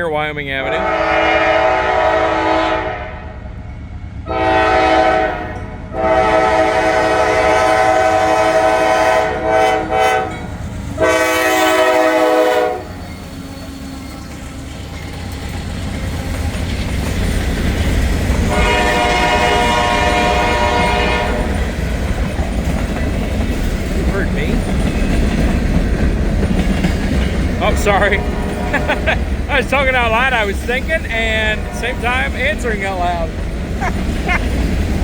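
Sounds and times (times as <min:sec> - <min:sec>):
train rumbling: 0:00.0 - 0:35.0
locomotive air horn blasts: 0:00.7 - 0:03.4, 0:04.3 - 0:10.4, 0:11.0 - 0:13.0, 0:18.5 - 0:21.6, 0:27.9 - 0:29.2, 0:31.3 - 0:32.4.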